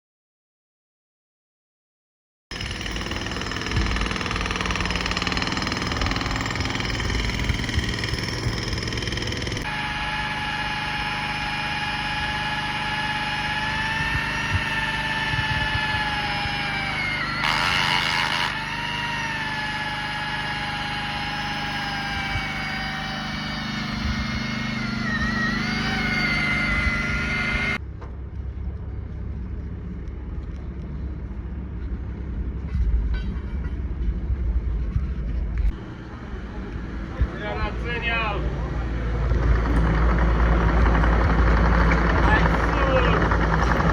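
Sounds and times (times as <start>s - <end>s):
excavator engine whining: 3.2s - 27.8s, 35.7s - 43.9s.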